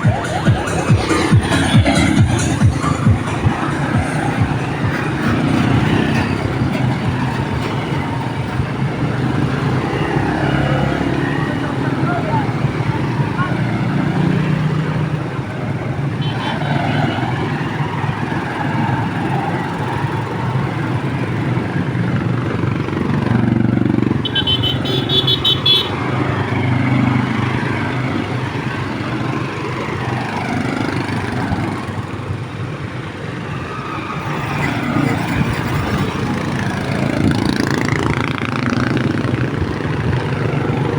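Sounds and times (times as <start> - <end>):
motorcycle engines running: 0.0 - 33.5, 34.1 - 40.9
horn beeping rapidly: 24.2 - 26.0.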